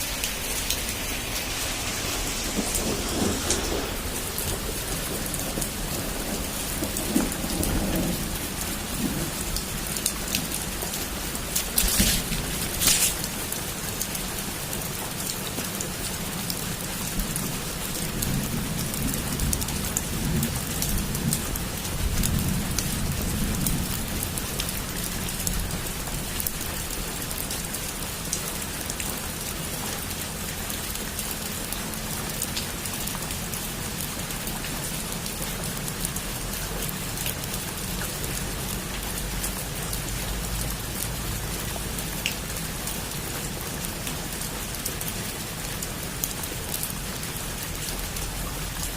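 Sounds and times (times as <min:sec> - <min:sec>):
distant thunder rumble: 0:00.0 - 0:13.7
heavy rain on a roof: 0:00.0 - 0:48.9.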